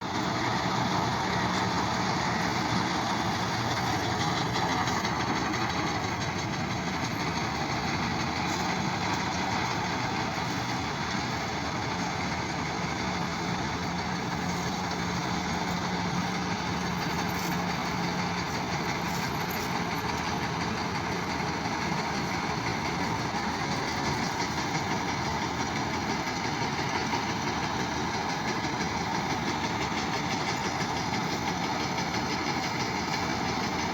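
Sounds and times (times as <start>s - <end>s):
tractor and baler running: 0.0s - 33.9s.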